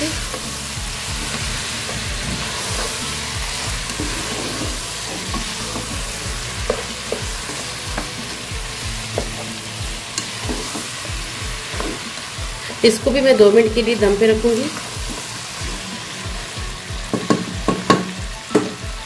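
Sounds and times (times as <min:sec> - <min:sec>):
spatula scraping pot: 0:00.0 - 0:13.2
chicken sizzling in hot oil: 0:00.0 - 0:19.0
spatula tapping pot: 0:17.1 - 0:18.8.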